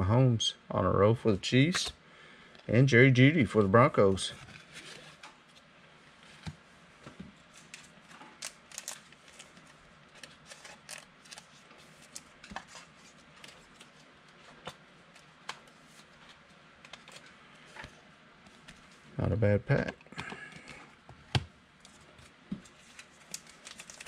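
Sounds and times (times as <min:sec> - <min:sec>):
trading cards clicking and rustling: 0:07.6 - 0:18.8.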